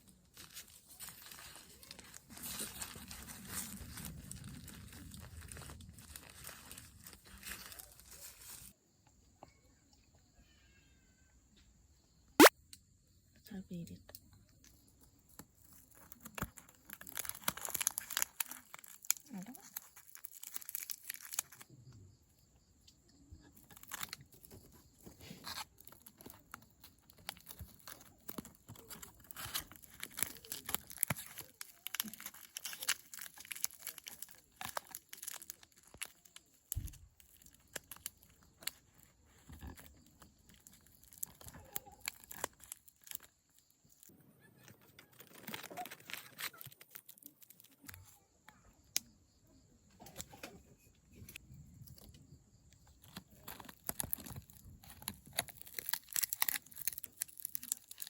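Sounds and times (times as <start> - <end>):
plastic crinkling and rustling: 0.0 - 8.8, 15.3 - 21.7, 23.5 - 48.2, 52.8 - 58.0.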